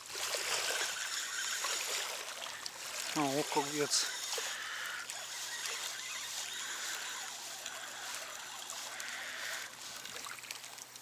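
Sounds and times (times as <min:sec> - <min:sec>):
fish thrashing and splashing: 0:00.0 - 0:11.0.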